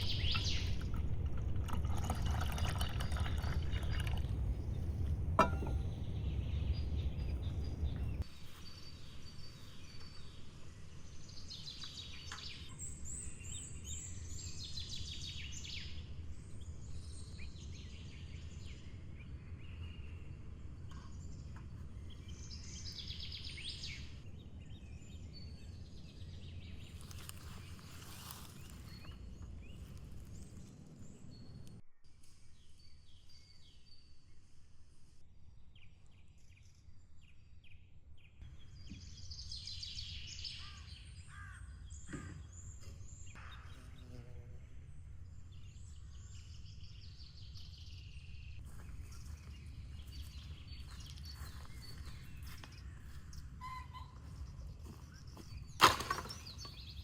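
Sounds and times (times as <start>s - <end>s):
birds chirping and singing: 0.0s - 1.4s, 45.2s - 57.0s.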